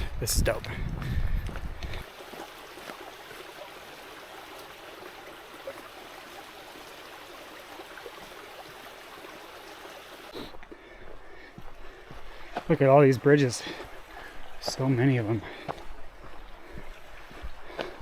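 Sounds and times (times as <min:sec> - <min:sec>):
stream water rushing: 0:02.0 - 0:10.6.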